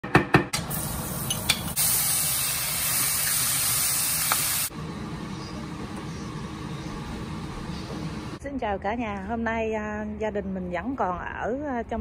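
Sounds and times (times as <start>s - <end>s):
chicken sizzling in a wok: 0.7s - 4.7s.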